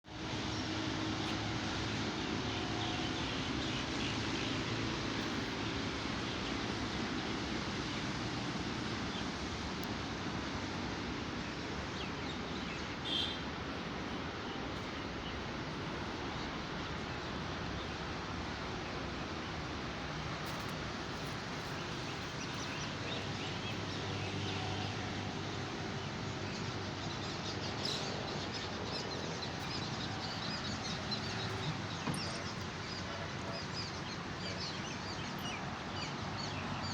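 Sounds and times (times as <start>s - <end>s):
outdoor background noise: 0.0s - 36.9s
birds chirping: 11.4s - 13.5s, 20.4s - 36.9s.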